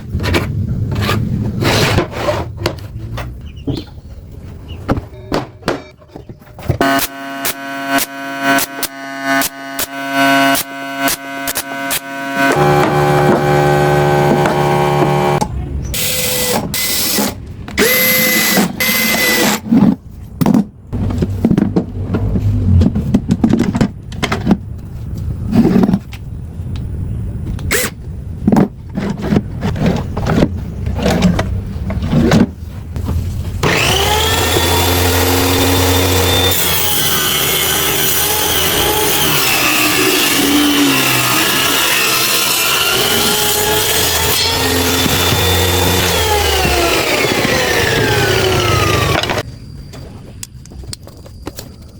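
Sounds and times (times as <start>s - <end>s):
power tool running: 6.8s - 15.4s, 16.0s - 19.6s, 33.6s - 49.4s.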